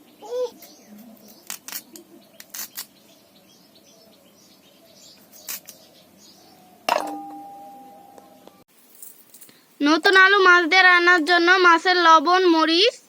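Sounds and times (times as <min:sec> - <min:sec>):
metal utensil clanking and ringing: 0:06.9 - 0:08.4.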